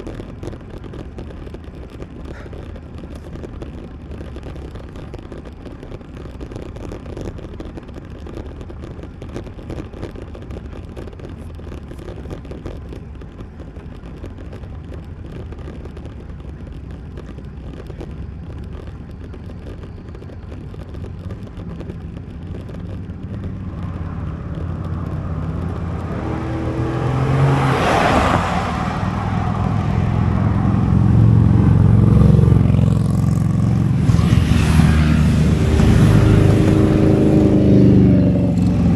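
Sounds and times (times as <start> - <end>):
wind and road noise: 0.0 - 38.9
vehicle engine passing: 22.6 - 38.9.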